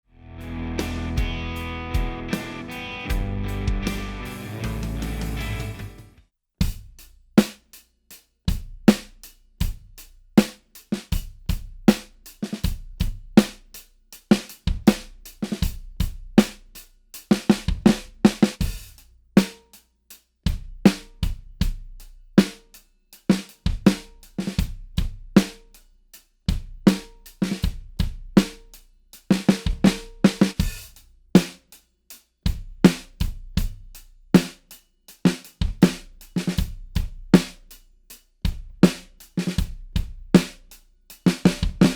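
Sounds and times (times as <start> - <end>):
snare drum backbeat: 2.0 - 6.0, 32.9 - 33.1, 41.3 - 41.9
kick drum: 3.1 - 3.9.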